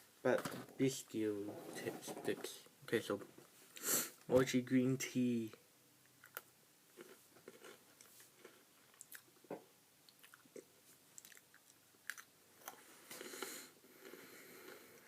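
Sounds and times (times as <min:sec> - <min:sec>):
chewing crunchy biscuit: 0:06.2 - 0:09.4, 0:10.1 - 0:14.9.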